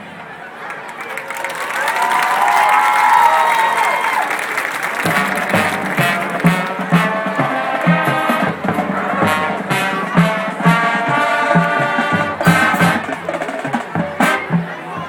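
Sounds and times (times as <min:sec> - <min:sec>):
brass holding chords: 0:05.0 - 0:15.0
marching drums beat: 0:05.0 - 0:15.0.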